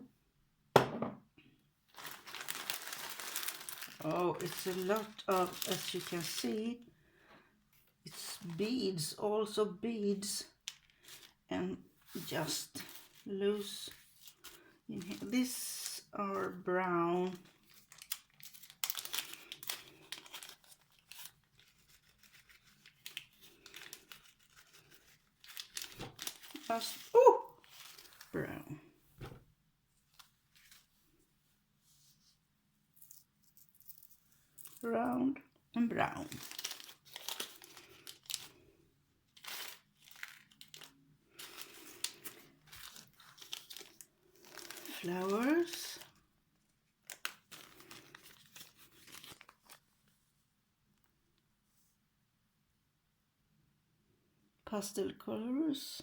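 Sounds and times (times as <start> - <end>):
plastic packaging crinkling: 1.9 - 6.8, 10.5 - 11.4, 12.1 - 28.6, 30.1 - 31.0, 33.0 - 34.9, 36.0 - 38.7, 39.3 - 46.2, 47.0 - 49.9.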